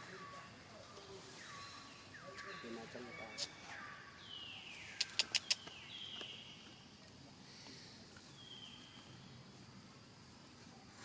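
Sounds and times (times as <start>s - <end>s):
quick sharp clicks: 5.0s - 5.7s.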